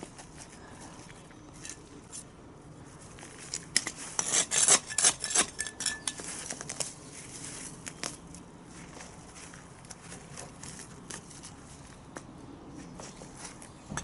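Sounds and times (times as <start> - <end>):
metal hand tool scraping soil: 3.4 - 6.9.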